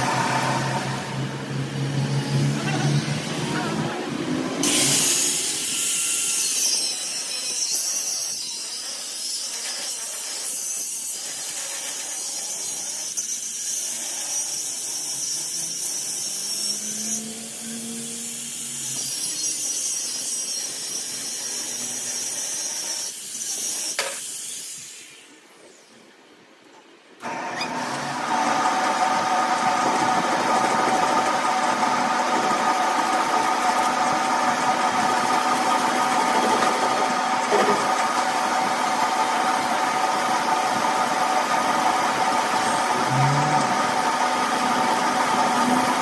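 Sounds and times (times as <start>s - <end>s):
high-pitched hissing rasp on metal: 4.6s - 26.0s, 42.4s - 46.0s.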